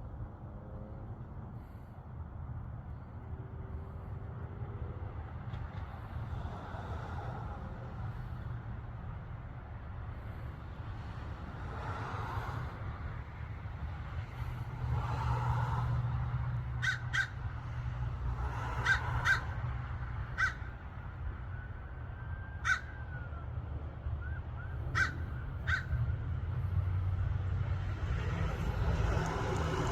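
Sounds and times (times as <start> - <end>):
bird short sharp calls: 16.8 - 17.4, 18.8 - 19.6, 20.3 - 20.7, 24.2 - 26.0
steady low rumble: 17.3 - 29.9.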